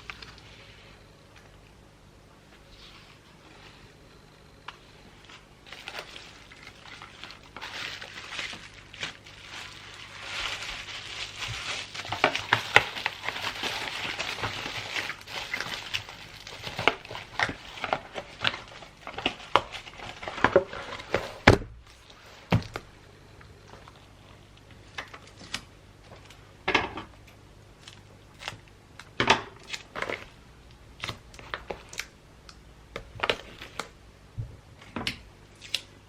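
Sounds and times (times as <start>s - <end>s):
wrapping paper crinkling: 5.2s - 22.8s.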